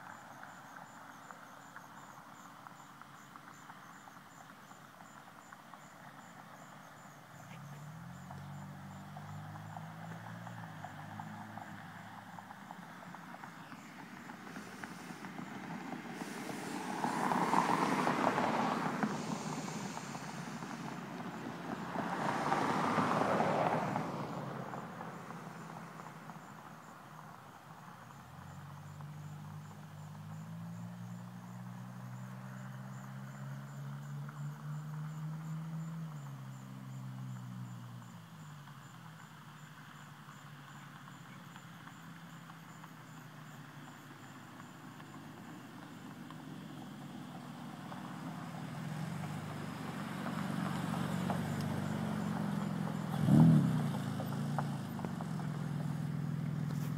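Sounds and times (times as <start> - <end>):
cars rushing past: 0.0 - 56.9.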